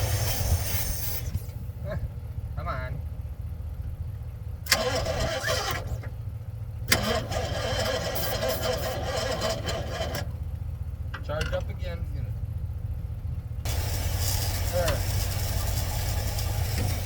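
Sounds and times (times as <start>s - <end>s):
engine cranking on starter: 4.6s - 6.2s, 6.8s - 10.4s, 13.7s - 17.0s
low rumble: 12.5s - 17.0s.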